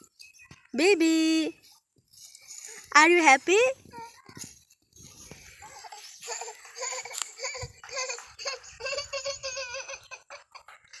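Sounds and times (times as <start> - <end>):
baby giggling: 5.6 - 11.0.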